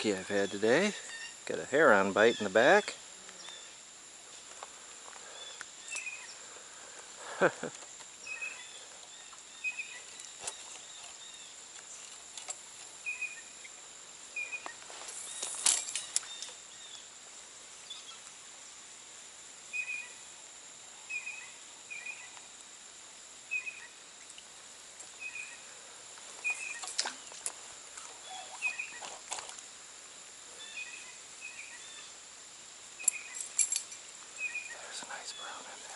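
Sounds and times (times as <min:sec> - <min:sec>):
high-pitched insect drone: 0:00.0 - 0:18.4, 0:19.6 - 0:29.3
small bird chirping: 0:05.3 - 0:06.4, 0:08.2 - 0:12.2, 0:13.0 - 0:13.8, 0:17.8 - 0:18.3, 0:26.4 - 0:27.4, 0:28.0 - 0:29.2, 0:33.0 - 0:33.6, 0:34.4 - 0:35.9.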